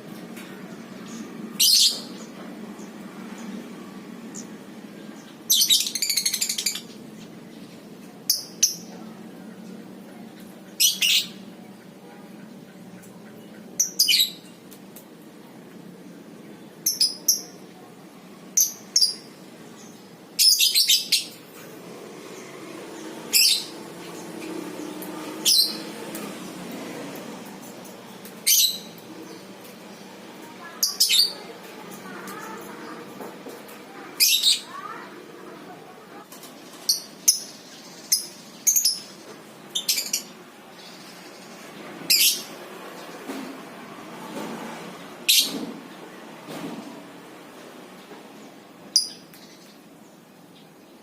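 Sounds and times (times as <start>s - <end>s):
bird rattling chatter trills: 30.6s - 33.0s.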